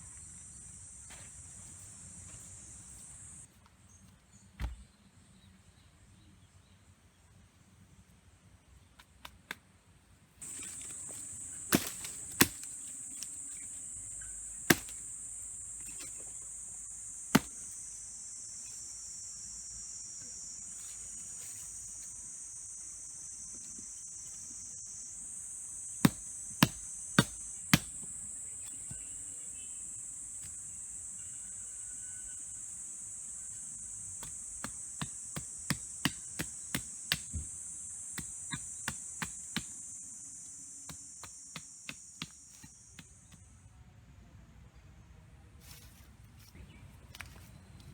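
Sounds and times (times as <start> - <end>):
high-pitched insect chorus: 0.0 - 3.5, 10.4 - 44.1.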